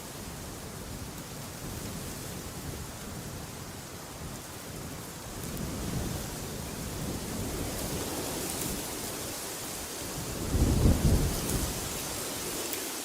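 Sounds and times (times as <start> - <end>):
wind blowing: 9.9 - 13.0.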